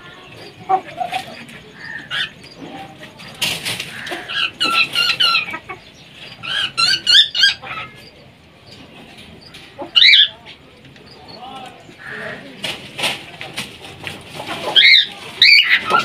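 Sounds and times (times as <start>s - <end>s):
caged birds squawking: 0.0s - 16.0s
wings fluttering: 12.5s - 16.0s.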